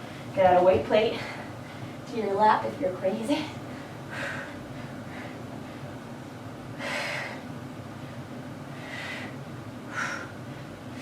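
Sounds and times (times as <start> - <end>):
woman breathing hard: 3.6 - 6.0, 6.7 - 11.0.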